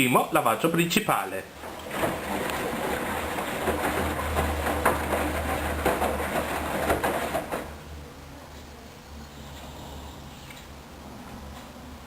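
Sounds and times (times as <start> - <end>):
water sloshing and clattering: 1.6 - 7.8
washing machine drum turning: 1.6 - 7.9.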